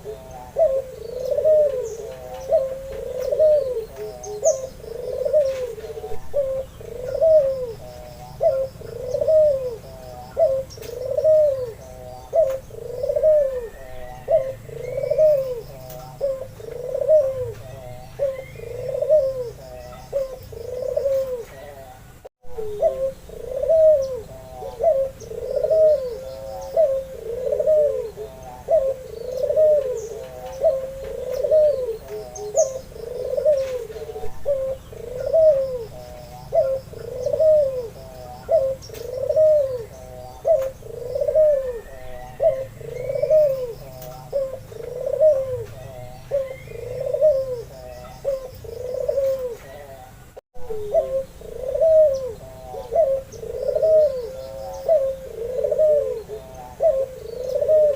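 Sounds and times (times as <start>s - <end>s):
dove cooing: 0.0s - 57.9s.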